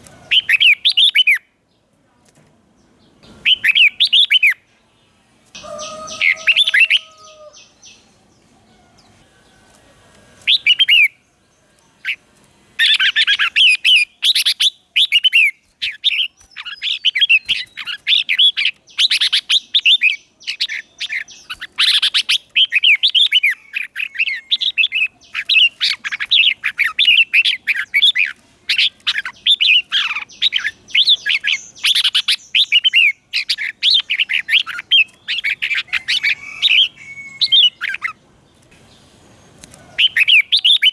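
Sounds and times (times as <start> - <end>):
bird warbling song: 0.0 - 1.5, 3.0 - 4.7, 5.6 - 9.8, 10.4 - 12.2, 12.8 - 40.9.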